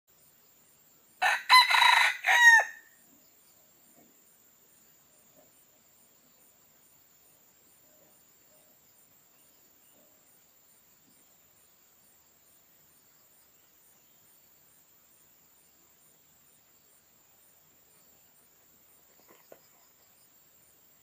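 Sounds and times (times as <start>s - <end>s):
rooster crowing: 1.2s - 3.0s.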